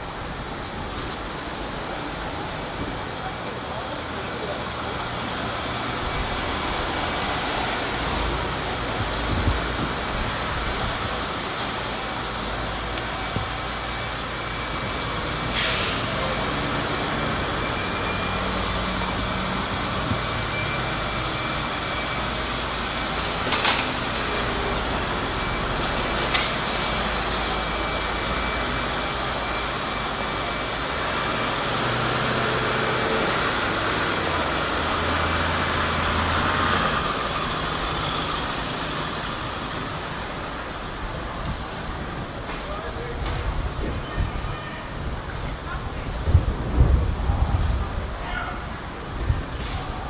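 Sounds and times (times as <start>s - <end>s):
heavy vehicle engine hum: 0.0s - 50.0s
passing traffic: 0.0s - 50.0s
sharp hiss of air: 15.5s - 16.3s, 26.6s - 27.6s.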